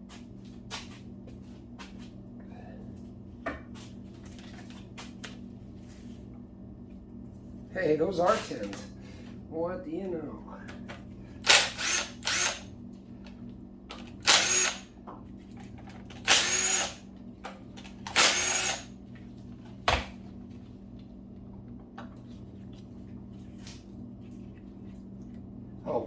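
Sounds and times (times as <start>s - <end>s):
power drill whining in bursts: 11.4s - 12.7s, 14.2s - 14.9s, 16.2s - 17.0s, 18.1s - 18.9s.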